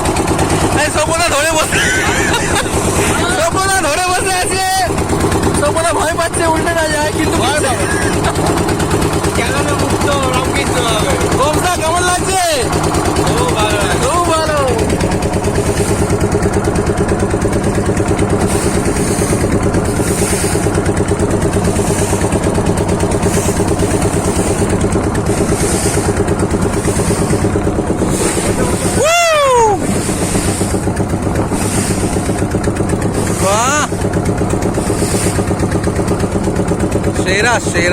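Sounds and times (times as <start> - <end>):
motorboat engine chugging: 0.0 - 37.9
person exclaiming: 28.8 - 29.9.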